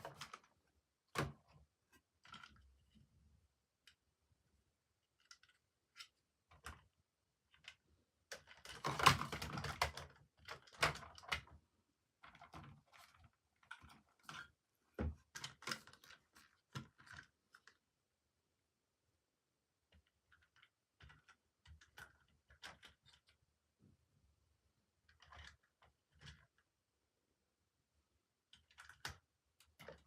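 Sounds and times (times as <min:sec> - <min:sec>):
plastic clicking and clattering: 0:05.1 - 0:11.6, 0:12.2 - 0:17.8, 0:20.0 - 0:23.4, 0:25.0 - 0:26.6, 0:28.5 - 0:30.0.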